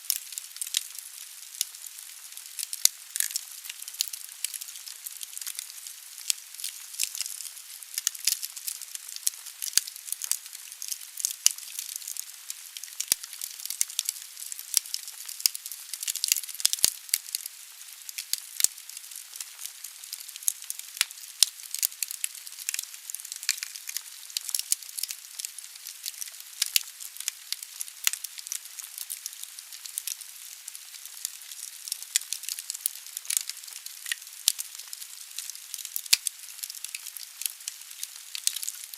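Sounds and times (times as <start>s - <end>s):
wood fire hissing: 0.0s - 15.3s, 37.8s - 38.9s
logs crackling and popping: 0.0s - 38.9s.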